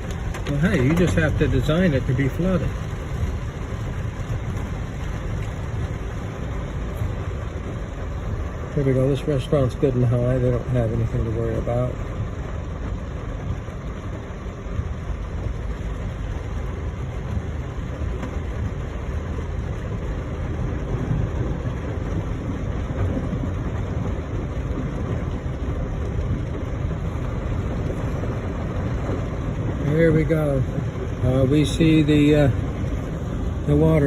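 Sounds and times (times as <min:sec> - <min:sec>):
car engine and tyre noise: 0:00.0 - 0:34.0
rain: 0:00.0 - 0:34.0.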